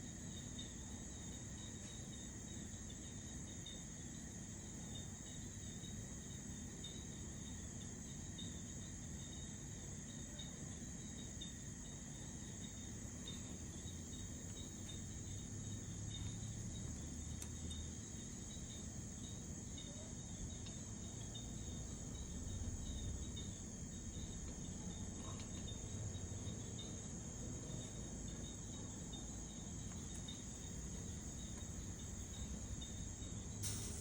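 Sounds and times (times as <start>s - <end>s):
crickets trilling: 0.0s - 34.0s
low steady rumble: 21.4s - 26.7s.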